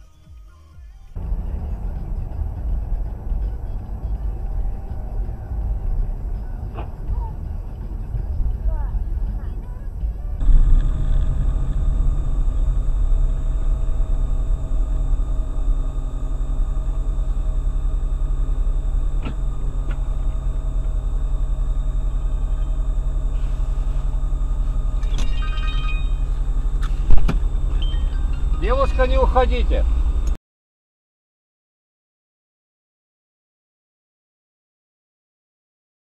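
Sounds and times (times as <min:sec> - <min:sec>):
car driving rumble: 0:00.0 - 0:30.4.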